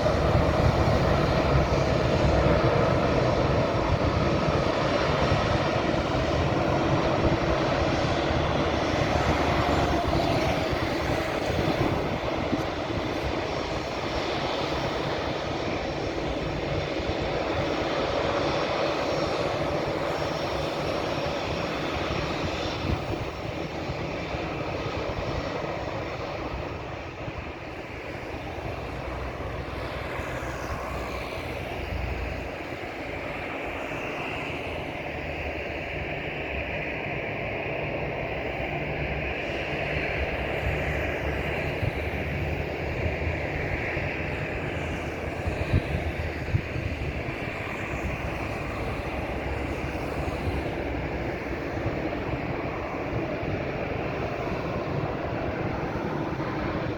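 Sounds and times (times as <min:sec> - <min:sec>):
jet engines at takeoff: 0:00.0 - 0:56.9.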